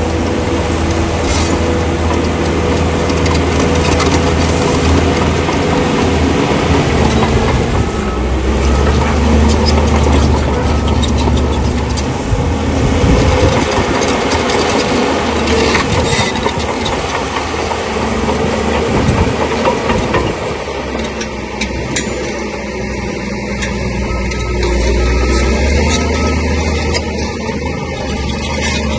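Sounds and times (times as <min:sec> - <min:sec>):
diesel engine under load: 0:00.0 - 0:28.9
steel tracks clanking: 0:00.0 - 0:28.9
stones grinding and knocking: 0:24.3 - 0:27.4.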